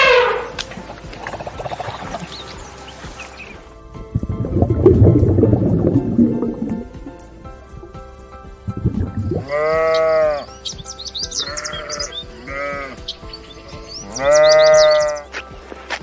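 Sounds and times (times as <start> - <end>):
sheep bleating: 0.0 - 0.6, 9.4 - 10.5, 11.2 - 15.4
background music: 0.0 - 16.0.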